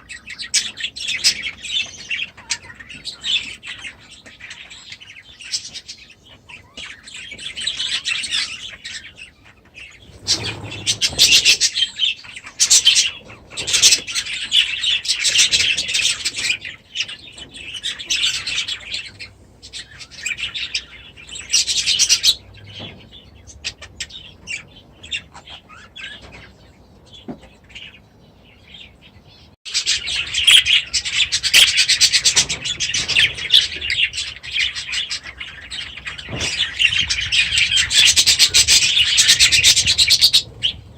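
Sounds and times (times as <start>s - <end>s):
birds chattering and chirping: 0.0s - 40.9s.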